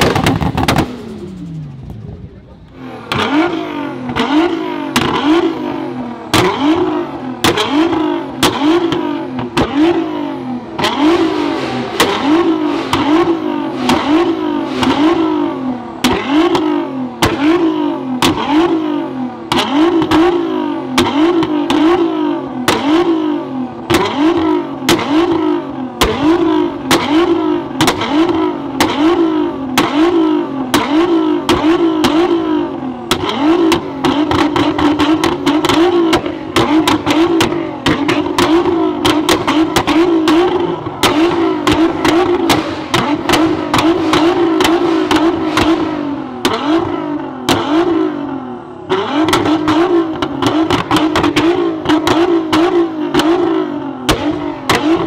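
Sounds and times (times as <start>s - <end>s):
exhaust cracks and pops: 0.0s - 1.1s, 33.1s - 48.0s, 49.2s - 55.0s
car engine revving: 0.0s - 55.0s.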